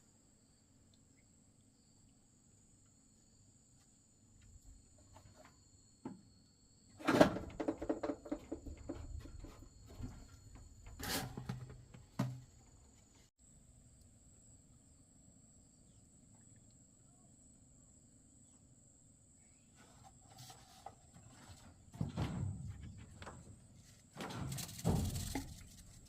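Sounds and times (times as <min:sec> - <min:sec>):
insects chirring: 0:00.0 - 0:26.0
irregular clattering: 0:21.3 - 0:26.0.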